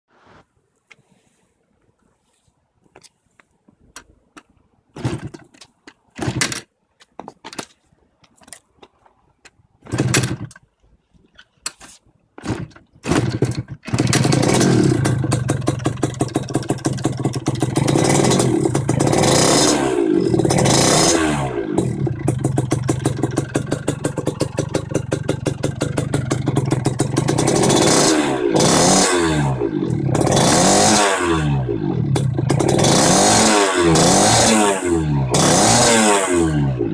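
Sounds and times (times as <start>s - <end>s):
engine starting bursts: 9.9s - 10.6s, 12.4s - 36.9s
two-stroke engine running: 12.5s - 36.9s.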